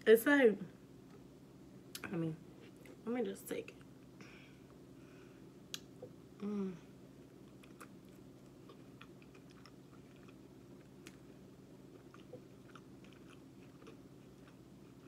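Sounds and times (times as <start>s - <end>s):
soft chewing and mouth clicks: 7.2s - 15.0s.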